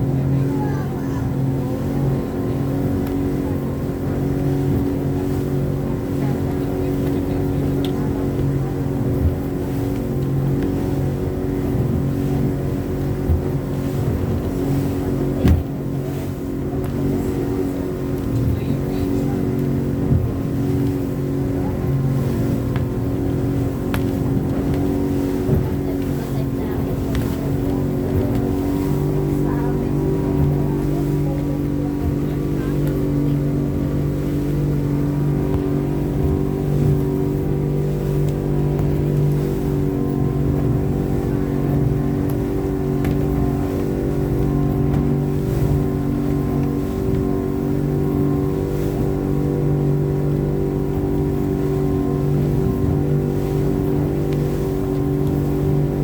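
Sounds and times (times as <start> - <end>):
boat motor running: 0.0 - 56.0
water noise: 0.0 - 56.0
thump: 15.4 - 15.7.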